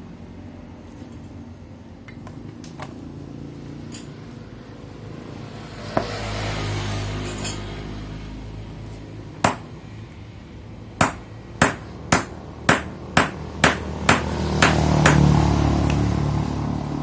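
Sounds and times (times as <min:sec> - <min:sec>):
hammer striking metal: 0:09.5 - 0:09.8, 0:11.0 - 0:15.4.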